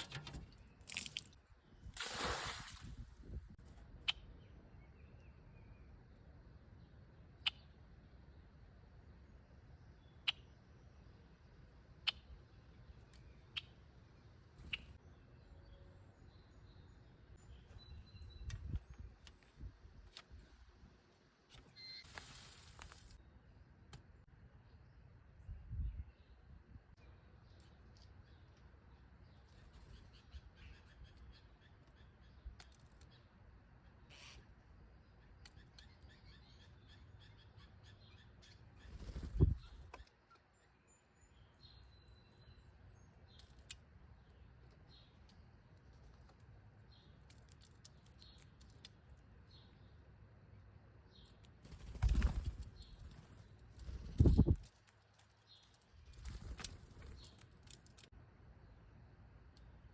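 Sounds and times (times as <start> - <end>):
faint bird chirps: 9.7 - 11.2, 21.6 - 22.9
bird chip calls: 10.1 - 10.6, 14.6 - 15.0.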